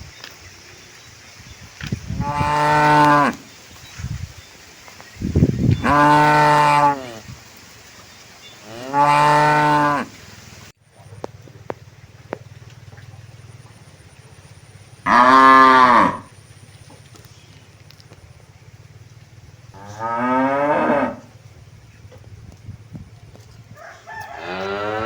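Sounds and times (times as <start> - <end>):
cow mooing: 2.2 - 3.4, 5.8 - 7.2, 8.6 - 10.1, 15.1 - 16.3, 19.8 - 21.3, 24.4 - 25.0.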